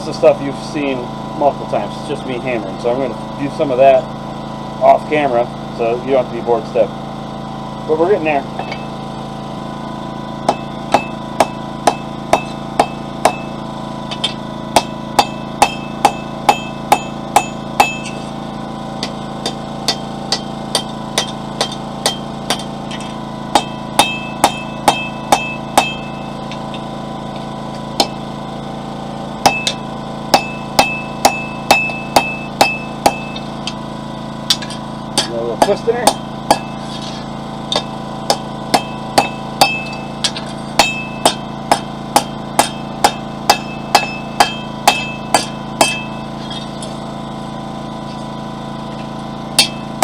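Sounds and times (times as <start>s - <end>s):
generator humming: 0.0s - 50.0s
hammer striking steel on anvil: 8.6s - 8.9s, 10.4s - 18.4s, 19.0s - 28.3s, 29.4s - 33.8s, 34.4s - 47.0s, 49.0s - 50.0s.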